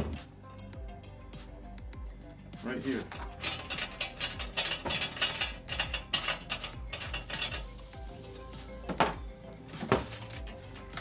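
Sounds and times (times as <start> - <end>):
ratchet wrench clicking: 3.0 - 7.7, 10.1 - 11.0.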